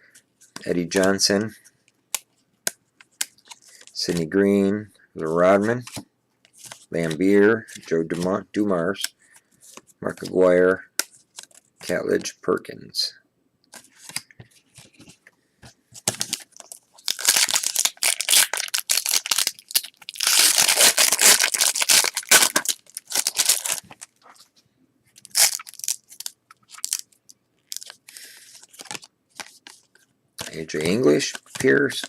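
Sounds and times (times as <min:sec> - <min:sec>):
wrapper tearing and crinkling: 0:16.1 - 0:24.2, 0:25.2 - 0:28.0.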